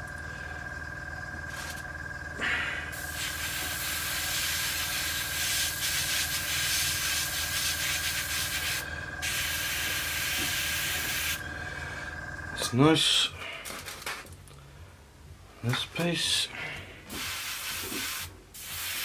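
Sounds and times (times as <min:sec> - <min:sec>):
airbrush spraying hiss: 0:02.9 - 0:11.4, 0:17.1 - 0:19.0.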